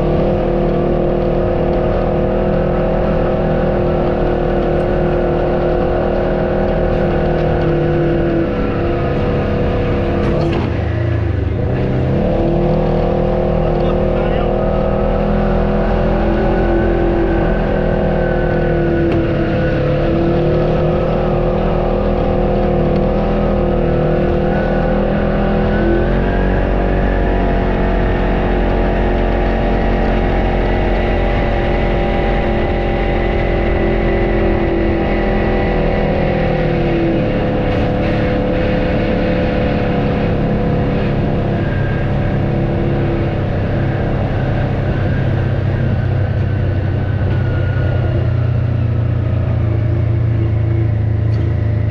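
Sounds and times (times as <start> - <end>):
off-road vehicle engine running: 0.0 - 51.9.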